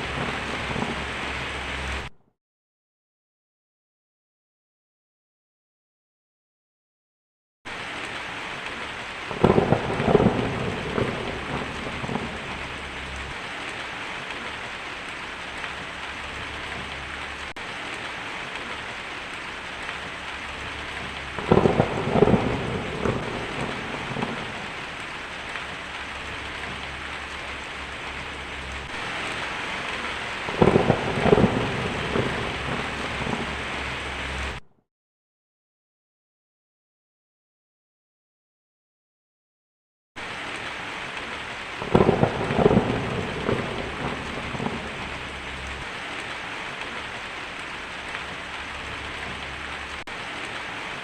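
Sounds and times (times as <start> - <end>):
thunder claps: 0.0 - 2.1, 7.8 - 34.6, 40.2 - 51.0
heavy rain: 0.0 - 2.2, 7.7 - 34.6, 40.2 - 51.0.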